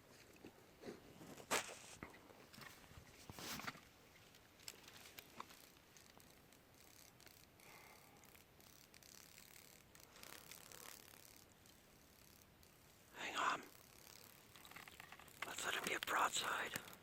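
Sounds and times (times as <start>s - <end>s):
faint outdoor hiss: 0.0s - 17.0s
soft rustle: 0.0s - 17.0s
small clicks: 3.5s - 13.0s, 13.6s - 17.0s.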